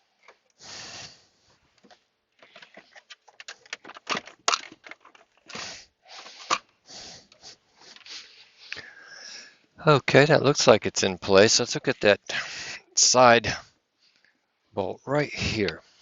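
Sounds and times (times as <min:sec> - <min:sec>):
plastic rubbing and rustling: 0:01.5 - 0:06.7
plastic clicks and knocks: 0:01.8 - 0:05.6.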